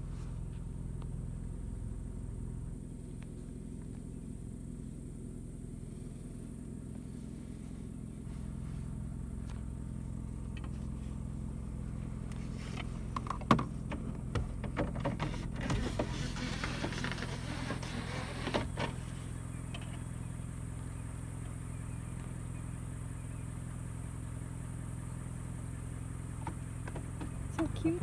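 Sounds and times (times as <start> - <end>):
car engine idling: 0.0 - 28.0
sharp clicks and knocks: 12.8 - 17.2.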